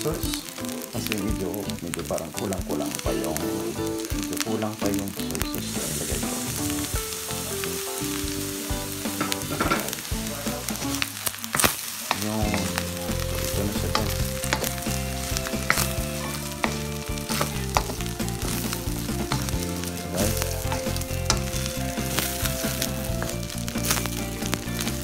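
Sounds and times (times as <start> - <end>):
fried rice sizzling in pan: 0.0 - 25.0
utensil scraping pan: 12.1 - 24.2.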